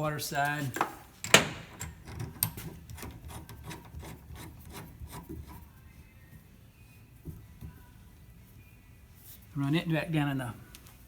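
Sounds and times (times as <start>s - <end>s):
hose coupling rubbing and clicking: 0.7s - 5.7s.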